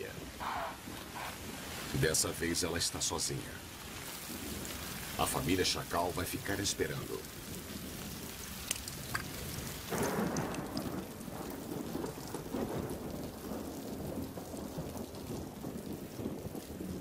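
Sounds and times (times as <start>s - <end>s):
heavy rain pattering on water: 0.0s - 17.0s
thunder rumbling: 0.0s - 17.0s
sharp drips: 8.2s - 10.9s.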